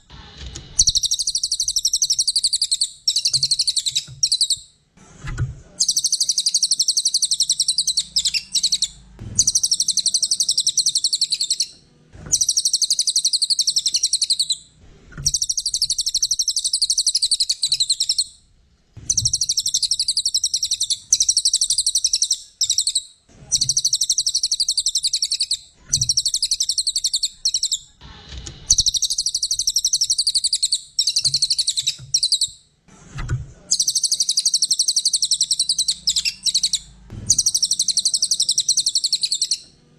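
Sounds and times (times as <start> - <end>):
songbird trilling chatter: 5.8 - 11.7, 33.8 - 39.6.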